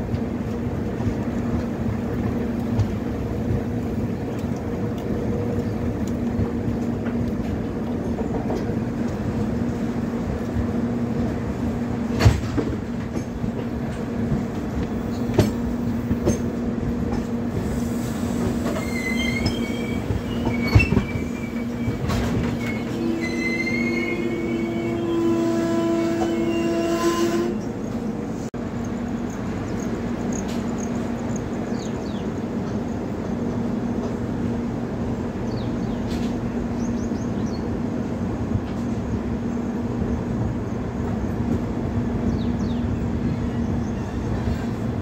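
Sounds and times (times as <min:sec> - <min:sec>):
train rumble and hum: 0:00.0 - 0:45.0
train wheels squealing: 0:17.5 - 0:28.0, 0:42.3 - 0:44.9.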